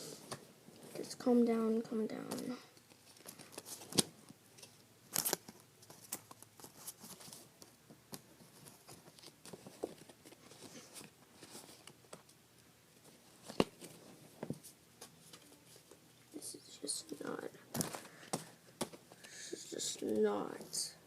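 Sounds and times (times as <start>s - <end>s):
cards and wrappers rustling: 2.2s - 7.5s, 8.2s - 12.3s, 16.8s - 20.9s.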